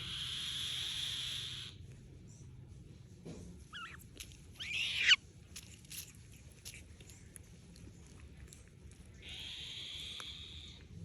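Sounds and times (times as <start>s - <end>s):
young bird of prey screeching: 0.0s - 1.8s, 3.7s - 5.2s, 9.2s - 10.8s.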